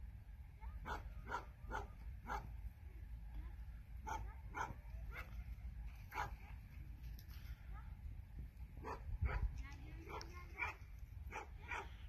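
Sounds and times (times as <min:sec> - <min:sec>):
dog yapping: 0:00.8 - 0:02.4.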